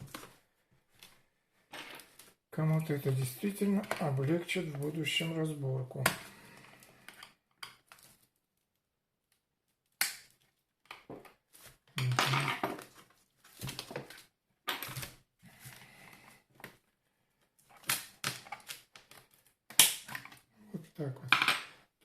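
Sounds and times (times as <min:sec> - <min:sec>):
plastic housing creaking and cracking: 0:17.6 - 0:20.5.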